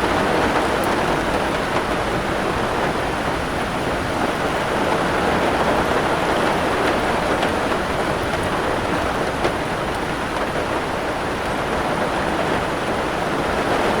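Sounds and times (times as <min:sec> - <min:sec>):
rain drop ticks: 0:00.0 - 0:03.2
heavy rain: 0:00.0 - 0:14.0.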